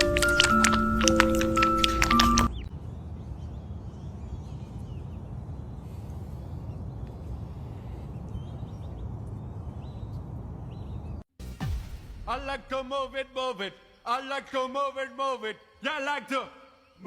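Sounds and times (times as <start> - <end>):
mallet percussion music: 0.0 - 2.6.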